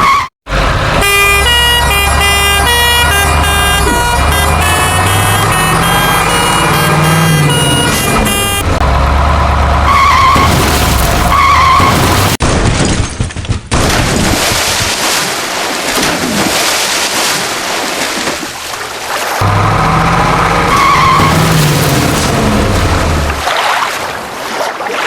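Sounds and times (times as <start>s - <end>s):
heavy engine rumble: 0.0s - 12.4s, 19.4s - 23.5s.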